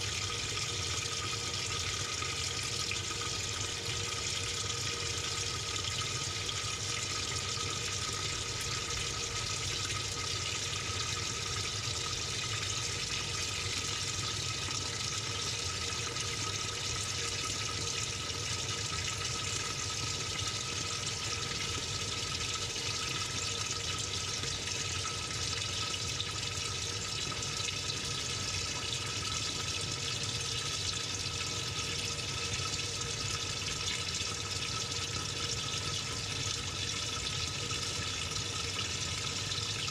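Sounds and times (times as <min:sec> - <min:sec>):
faint steady hum: 0:00.0 - 0:39.9
water rushing into washing machine: 0:00.0 - 0:39.9.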